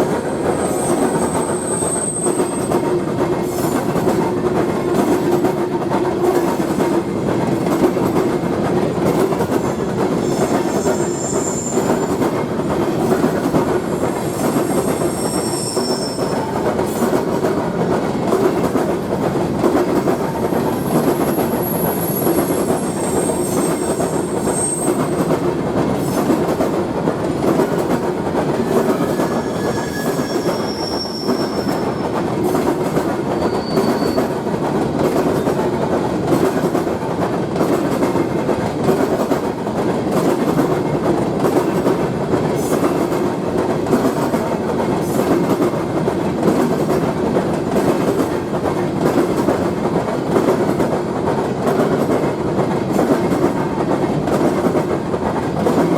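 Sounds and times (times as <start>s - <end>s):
train wheels clattering: 0.0s - 55.9s
high-pitched wheel squeals: 14.3s - 16.4s, 28.7s - 32.0s, 33.4s - 34.3s.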